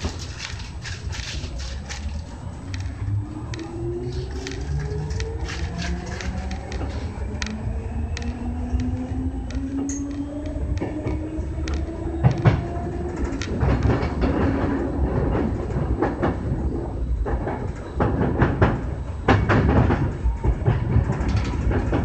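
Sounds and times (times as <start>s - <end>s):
electric train rumbling: 0.0s - 22.0s
wheels clacking over rail joints: 0.0s - 22.0s.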